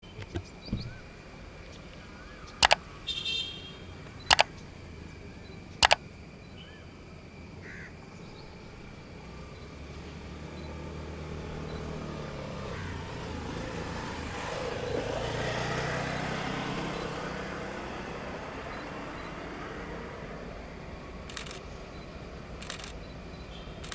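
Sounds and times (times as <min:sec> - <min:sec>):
sharp double clicks: 0:02.6 - 0:03.0, 0:04.2 - 0:04.7, 0:05.7 - 0:06.1, 0:21.3 - 0:21.8, 0:22.6 - 0:23.1.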